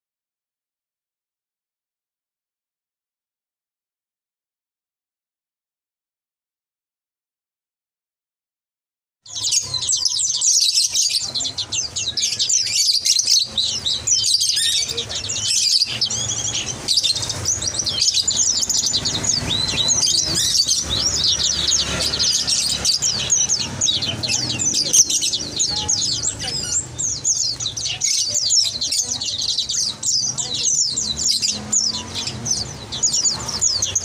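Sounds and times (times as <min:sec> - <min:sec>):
songbirds chirping and twittering: 0:09.3 - 0:34.0.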